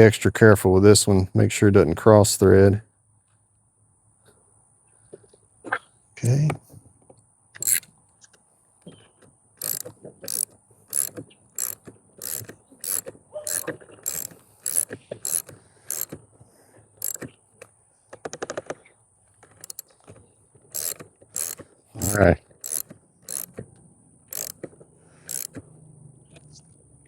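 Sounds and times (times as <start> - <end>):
socket ratchet clicking: 7.6 - 7.9, 9.6 - 16.2, 17.0 - 17.3, 19.6 - 19.8, 20.7 - 23.6, 24.3 - 24.7, 25.3 - 25.6.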